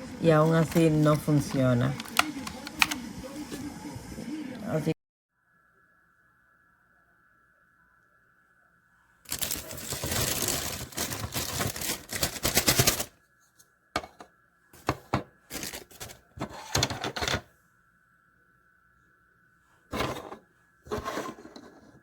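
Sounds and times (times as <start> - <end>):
plastic clicks and clatters: 0.6 - 3.0
plastic rattling clatter: 9.3 - 13.1, 14.8 - 17.4.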